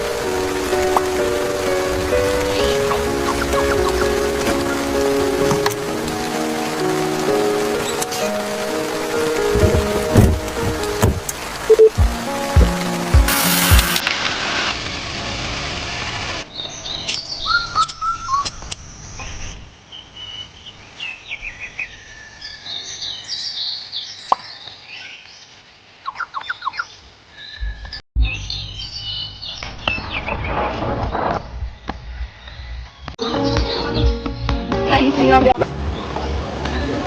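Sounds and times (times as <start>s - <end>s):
even hiss: 12.1s - 16.4s
birds chirping and whistling: 16.6s - 18.7s, 26.1s - 30.6s.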